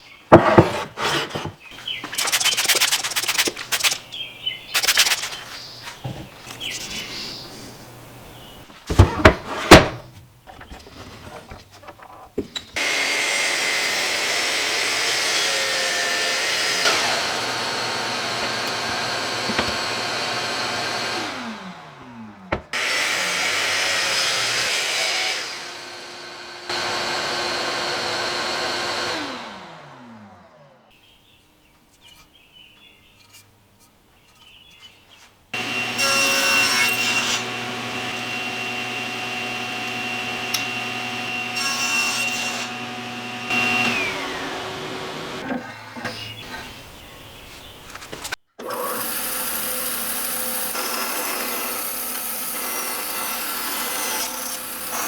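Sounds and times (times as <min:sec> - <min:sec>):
electric power tool running: 0:12.8 - 0:30.9, 0:35.6 - 0:45.5, 0:48.6 - 0:55.0.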